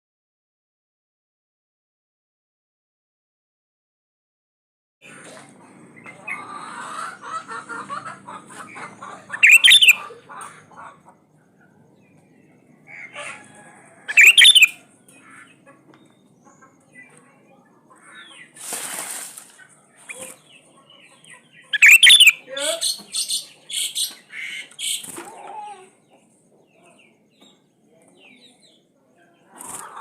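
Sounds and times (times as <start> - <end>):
bird chirping softly: 8.8 - 18.6, 19.6 - 29.9
bird whistled phrases: 9.4 - 10.0, 14.1 - 14.8, 21.7 - 24.0
brief rustle: 18.6 - 20.4.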